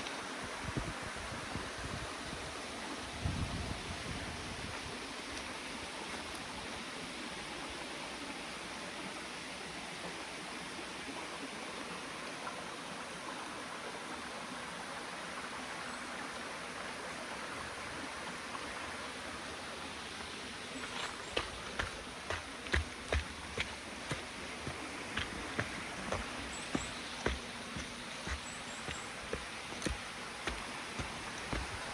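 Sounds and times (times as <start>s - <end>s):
stream rushing water: 0.0s - 31.9s
footsteps: 20.8s - 31.9s.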